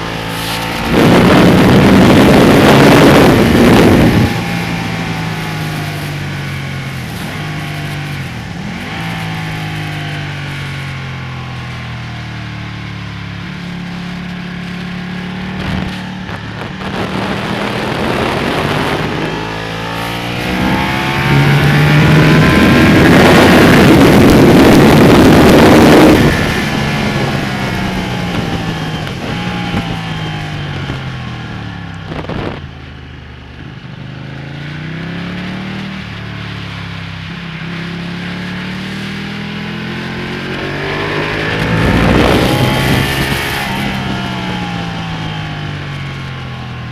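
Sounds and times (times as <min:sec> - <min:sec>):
loud rushing noise: 0:00.0 - 0:10.6, 0:14.6 - 0:32.6, 0:39.9 - 0:46.1
motorcycle engine revving: 0:00.0 - 0:46.9.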